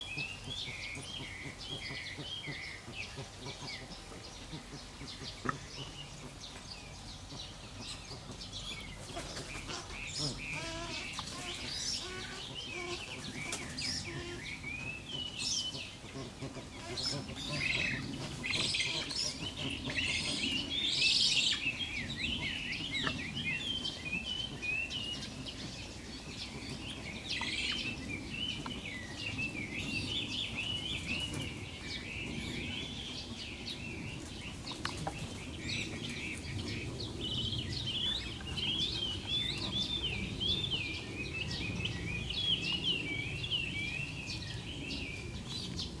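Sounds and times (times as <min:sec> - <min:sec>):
birds chirping: 0:00.0 - 0:46.0.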